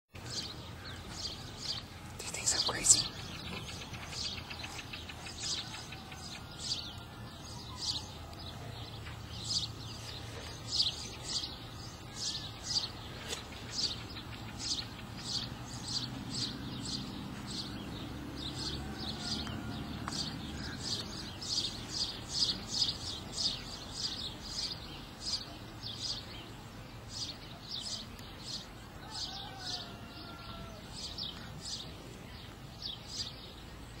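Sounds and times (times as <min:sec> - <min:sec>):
bird chirping: 0:00.2 - 0:34.0.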